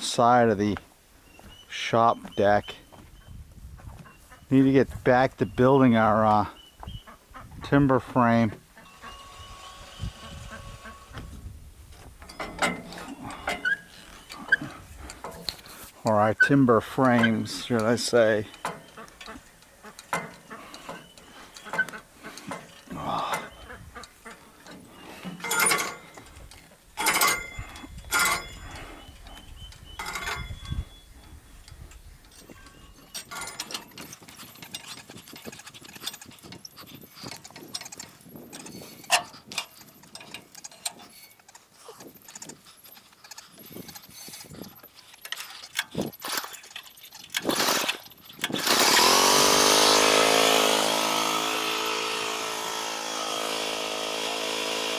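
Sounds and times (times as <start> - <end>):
knocks clanks and squeaks of work: 5.3 - 54.9
sawmill engine running loudly: 8.9 - 11.2, 48.6 - 54.9.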